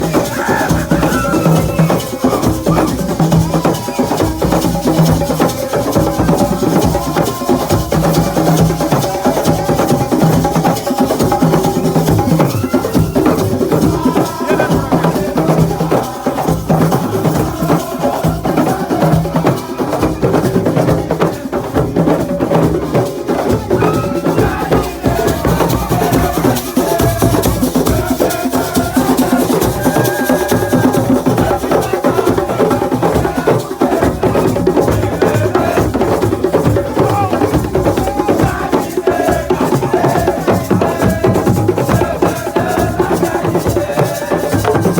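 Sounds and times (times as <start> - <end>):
hand drums playing fast beat: 0.0 - 44.9.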